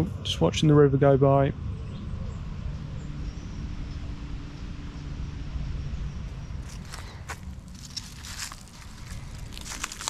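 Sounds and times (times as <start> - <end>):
crunching and crinkling: 6.6 - 10.0.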